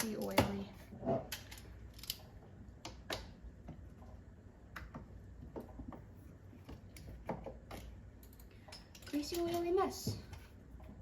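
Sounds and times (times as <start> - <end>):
hand tools and metal parts clicking: 1.2 - 3.3, 6.9 - 10.4.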